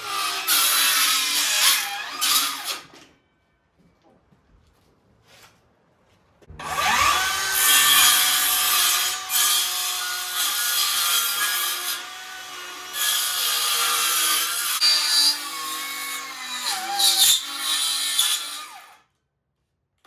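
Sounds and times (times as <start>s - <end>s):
power saw cutting timber: 0.0s - 2.8s, 6.5s - 18.9s.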